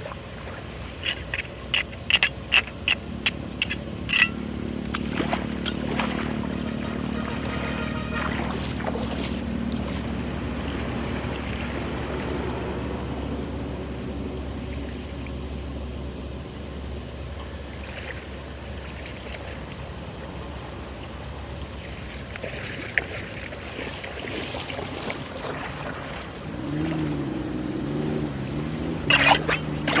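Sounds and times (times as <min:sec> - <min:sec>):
low wavering hum: 0:00.0 - 0:22.2, 0:25.6 - 0:30.0
loud water splashes: 0:04.8 - 0:12.9, 0:21.7 - 0:30.0.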